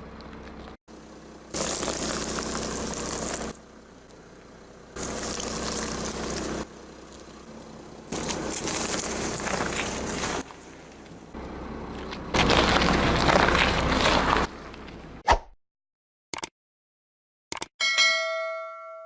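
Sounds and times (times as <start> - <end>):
low engine hum: 0.0 - 15.2
liquid spraying and splashing: 1.5 - 3.6, 5.0 - 7.4, 8.1 - 11.0.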